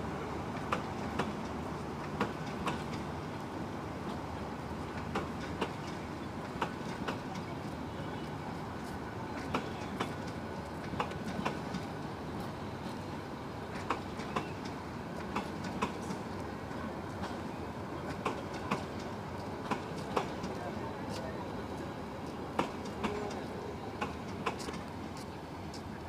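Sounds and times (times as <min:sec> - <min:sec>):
train coaches rumbling past: 0:00.0 - 0:26.0
wheel clacks on rail joints: 0:13.7 - 0:16.4, 0:17.1 - 0:20.6, 0:22.5 - 0:25.0.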